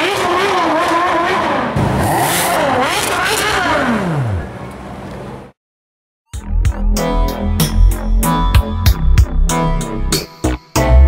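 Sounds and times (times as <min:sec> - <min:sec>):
sports car engine revving: 0:00.0 - 0:05.4.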